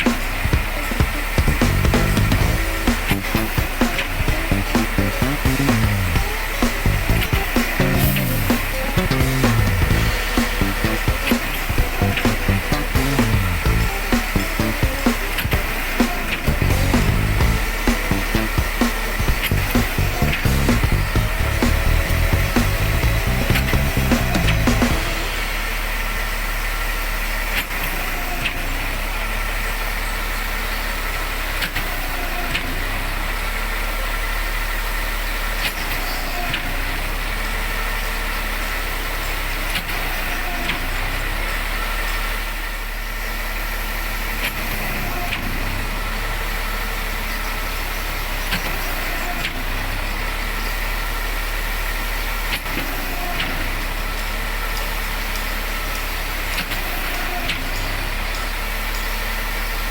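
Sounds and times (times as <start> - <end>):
diesel engine running: 0.0 - 31.5.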